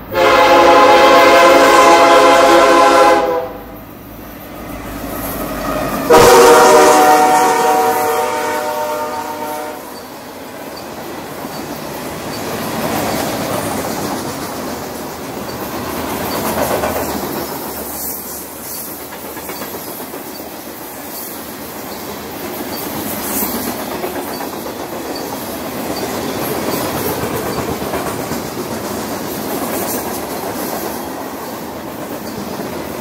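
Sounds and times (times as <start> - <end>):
train wheels rumbling on rails: 0.0 - 33.0
wheels clicking over rail joints: 9.9 - 33.0.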